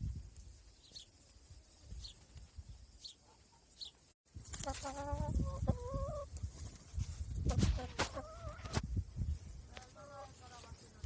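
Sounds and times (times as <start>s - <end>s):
bird chirping: 0.7s - 1.2s, 1.9s - 4.2s.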